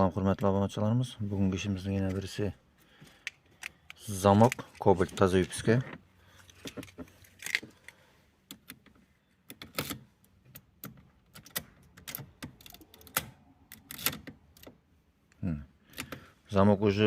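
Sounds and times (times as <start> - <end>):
key clicking in ignition lock: 8.5 - 14.8.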